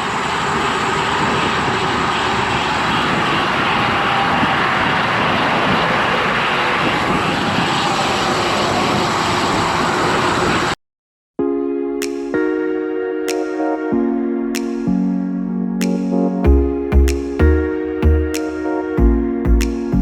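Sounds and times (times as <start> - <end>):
highway traffic: 0.0 - 10.8
strong wind on microphone: 0.0 - 10.8.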